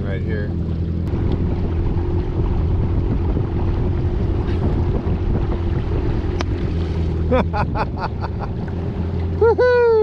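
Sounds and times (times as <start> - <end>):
watercraft engine idling: 0.0 - 10.0
wind noise on microphone: 1.1 - 9.0.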